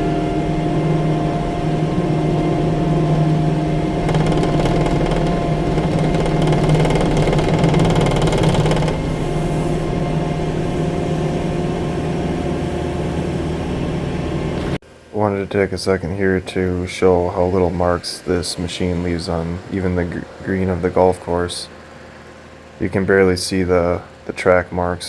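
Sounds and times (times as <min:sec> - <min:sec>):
hissing rattling noise: 0:04.1 - 0:09.9.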